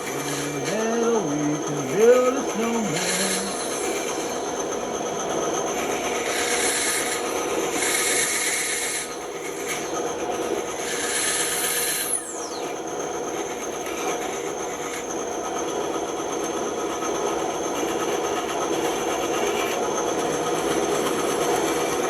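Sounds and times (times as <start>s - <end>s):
bandsaw cutting wood: 0.0s - 9.9s.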